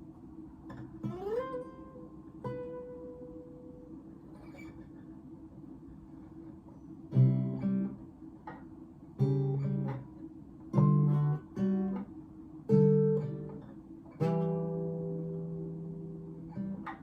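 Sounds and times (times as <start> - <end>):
acoustic guitar chords: 0.7 - 4.8, 7.1 - 17.0.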